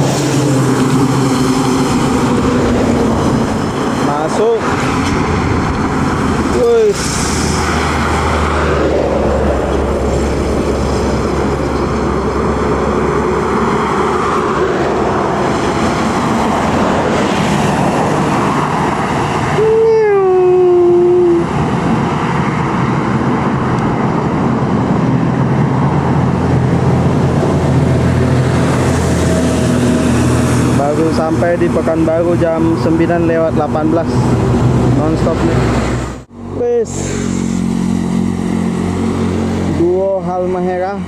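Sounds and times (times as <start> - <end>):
heavy vehicles passing: 0.0 - 41.0.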